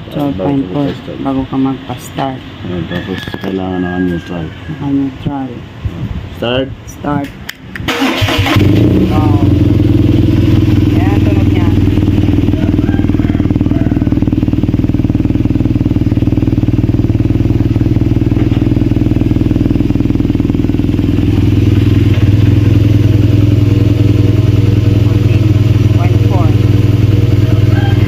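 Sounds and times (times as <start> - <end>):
motorcycle engine idling: 8.0 - 28.0.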